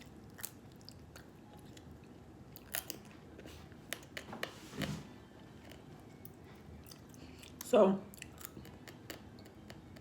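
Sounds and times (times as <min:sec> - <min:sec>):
chewing: 0:00.0 - 0:04.2, 0:05.6 - 0:10.0.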